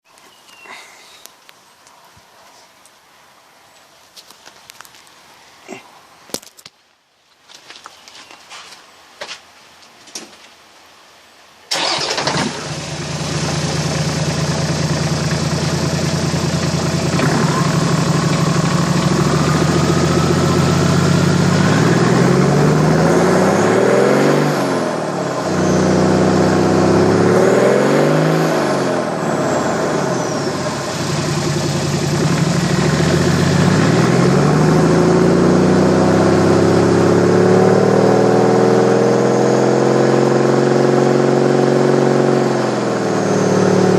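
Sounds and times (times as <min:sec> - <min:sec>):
engine starting: 0:11.7 - 0:13.0
engine idling and revving: 0:11.7 - 0:43.9.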